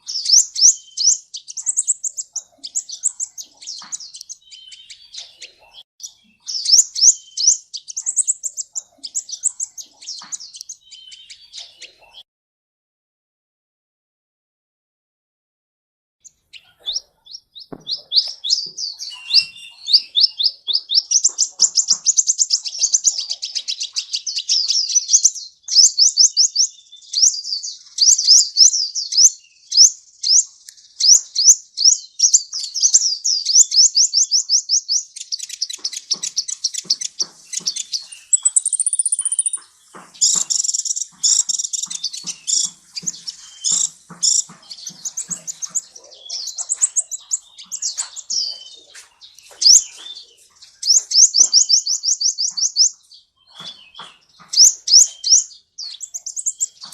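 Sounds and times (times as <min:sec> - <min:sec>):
sunbird twittering trills: 0:00.0 - 0:12.2, 0:16.2 - 0:56.9
bird whistle: 0:17.8 - 0:21.8, 0:38.2 - 0:39.6.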